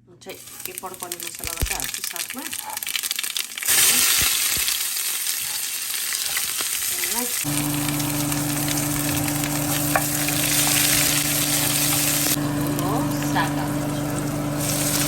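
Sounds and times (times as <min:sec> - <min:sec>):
spices sizzling in hot oil: 0:00.3 - 0:15.0
steady low hum: 0:07.4 - 0:15.0.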